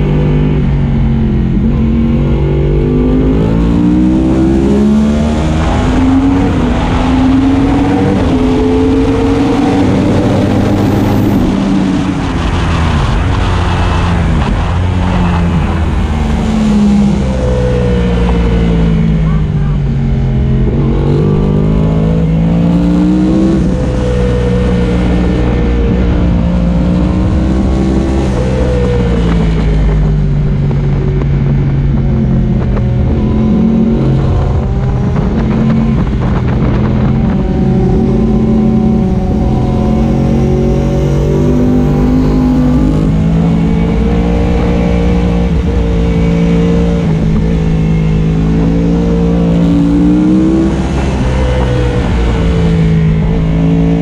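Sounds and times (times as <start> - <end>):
motorcycle engine at speed: 0.0 - 54.0
wind rush on microphone: 0.0 - 54.0.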